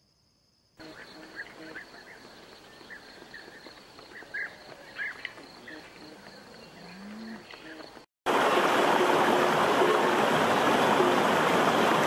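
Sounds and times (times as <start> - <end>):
insect trill: 0.0 - 8.0.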